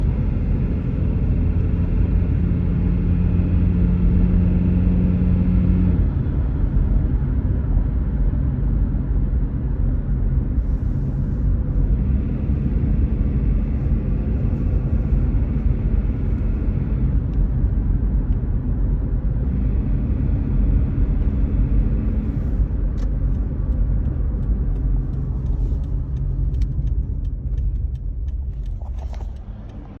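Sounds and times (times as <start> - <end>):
car engine running with rattle: 0.0 - 30.0.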